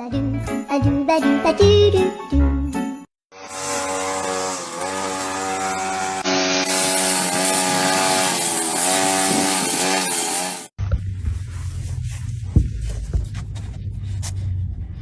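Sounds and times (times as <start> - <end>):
motor buzzing: 3.3 - 10.7.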